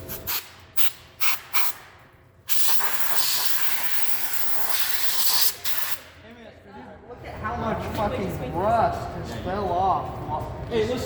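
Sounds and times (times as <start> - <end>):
compressed air hissing from nozzle: 0.1 - 1.9, 2.5 - 6.1.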